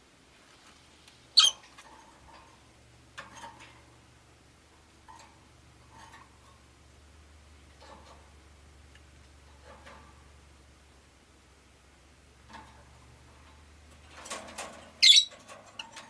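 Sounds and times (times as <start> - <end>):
lovebirds squeaky chirps: 1.4 - 1.7, 15.0 - 15.3.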